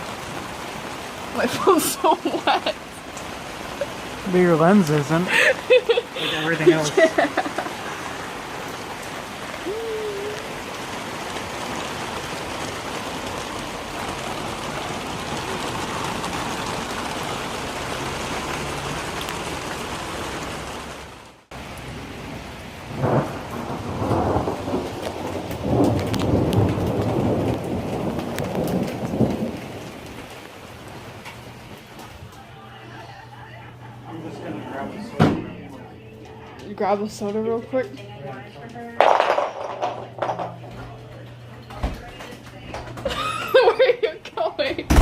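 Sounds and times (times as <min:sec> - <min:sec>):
heavy rain hissing: 0:00.0 - 0:36.0
thunder rumbling: 0:07.0 - 0:32.4.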